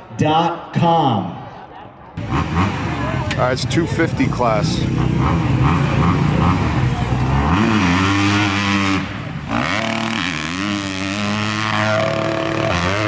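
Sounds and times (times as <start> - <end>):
motorcycle engine revving: 2.2 - 13.0.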